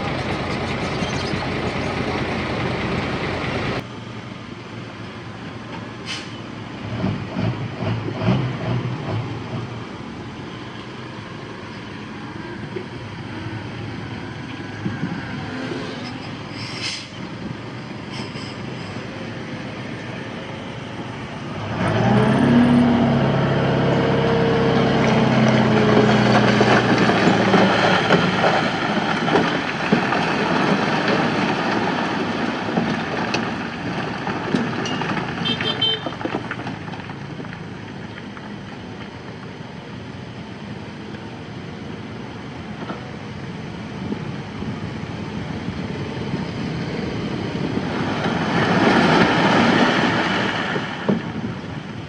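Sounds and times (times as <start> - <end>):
diesel engine running: 0.0 - 52.0
engine revving under load: 6.8 - 9.6, 21.5 - 28.5.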